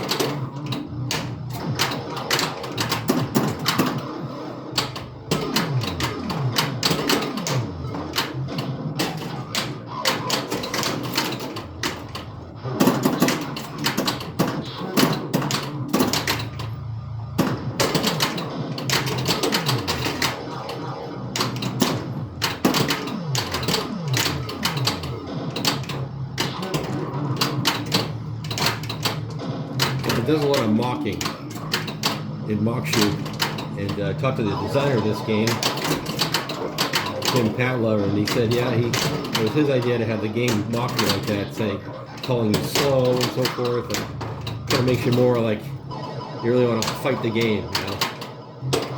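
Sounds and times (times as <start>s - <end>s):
electronic game sound effects: 0.0s - 48.9s
pinball machine clatter: 0.0s - 48.9s.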